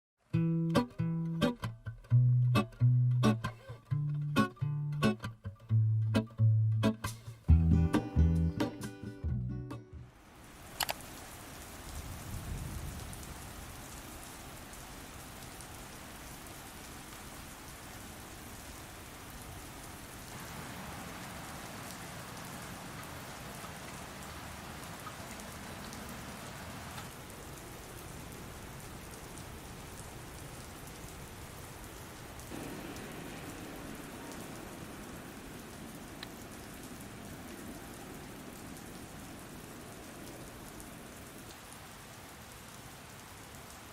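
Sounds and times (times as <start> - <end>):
steady rain falling: 10.1 - 43.9.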